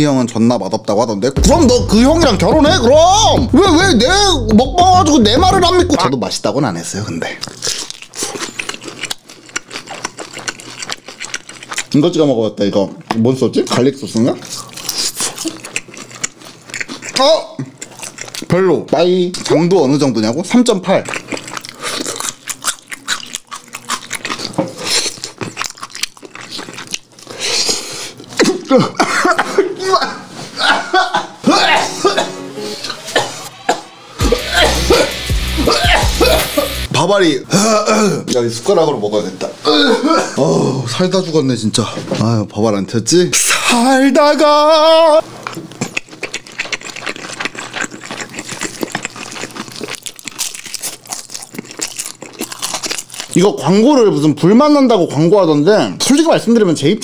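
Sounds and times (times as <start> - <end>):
wet chewing: 7.3 - 28.7, 45.2 - 54.2.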